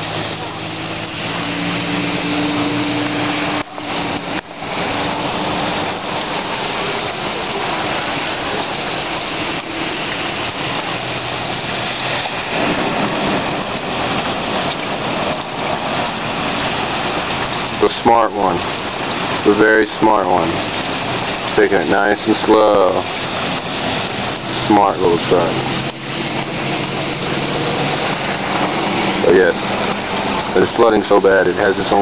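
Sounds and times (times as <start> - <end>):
engine hum: 0.0 - 17.9, 20.3 - 32.0
water rushing under vehicle: 0.0 - 32.0.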